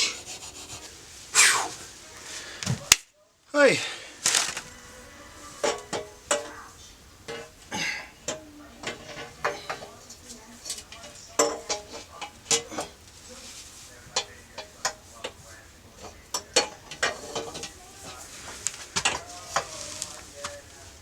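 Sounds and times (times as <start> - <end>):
metal tools clicking and clinking: 8.2 - 13.2, 16.0 - 20.6.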